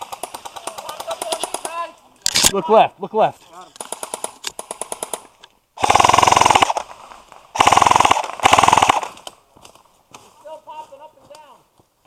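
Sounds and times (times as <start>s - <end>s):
airsoft gun firing full-auto bursts: 0.0s - 1.7s, 3.8s - 5.2s, 5.8s - 6.9s, 7.5s - 9.2s
faint rattle of rapid shots: 3.8s - 5.2s, 7.6s - 9.2s.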